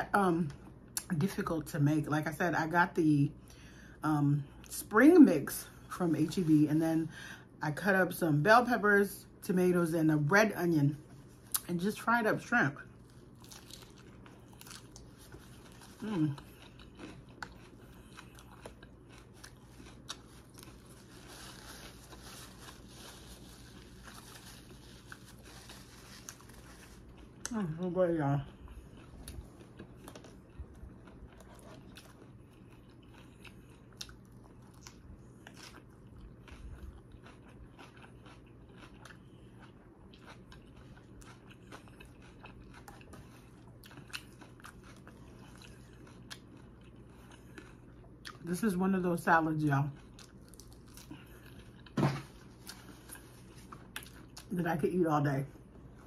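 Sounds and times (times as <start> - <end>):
steady low hum: 0.0 - 56.0
chewing crunchy salad: 11.1 - 54.7
napkin paper rustle: 20.9 - 27.0.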